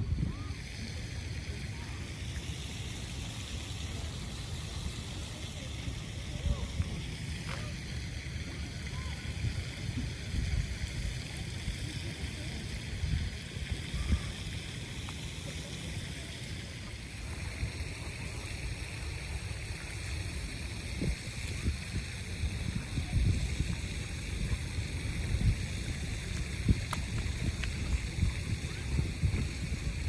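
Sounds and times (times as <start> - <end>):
wind buffeting microphone: 0.0 - 1.5, 3.9 - 11.9, 12.6 - 15.0, 17.2 - 30.0
faint voices: 0.0 - 30.0.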